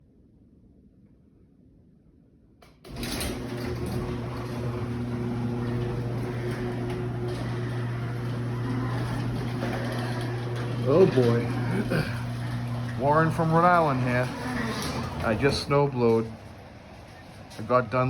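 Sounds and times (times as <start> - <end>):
machine hum with rushing noise: 2.9 - 15.5.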